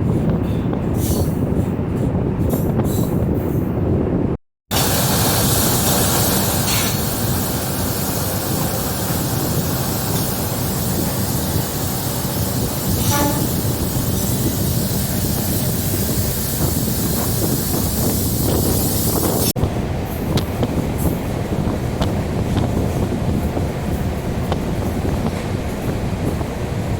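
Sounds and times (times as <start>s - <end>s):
train rail and wind noise: 0.0s - 26.9s
short horn toot: 13.0s - 13.6s.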